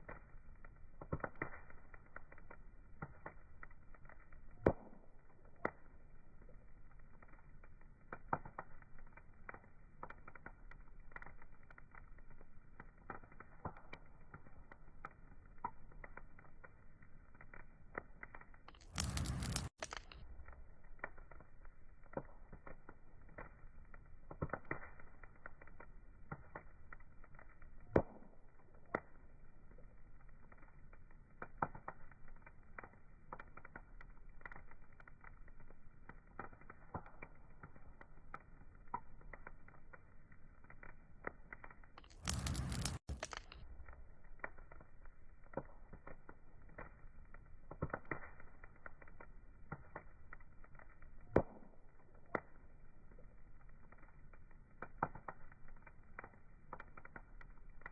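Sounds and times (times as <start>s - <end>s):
wood fire crackling: 0.0s - 57.9s.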